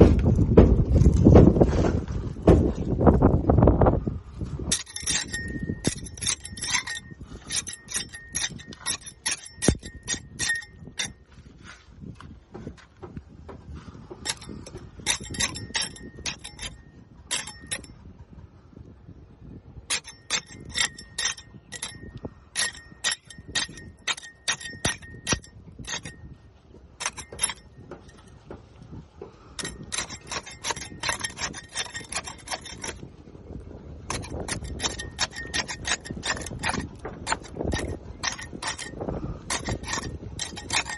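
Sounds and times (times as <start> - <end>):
scraper scraping barnacles off hull: 4.5 - 12.5, 13.8 - 17.9, 19.9 - 26.3, 26.9 - 33.3, 34.0 - 40.9.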